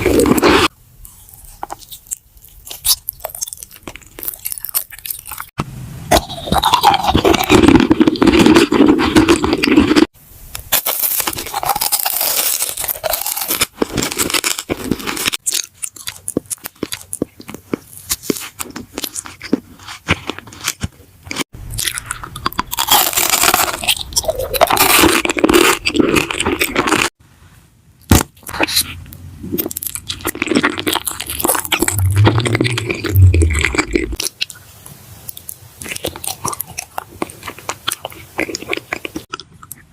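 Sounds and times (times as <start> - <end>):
crunchy chewing of food: 0.0 - 27.2, 28.4 - 39.9.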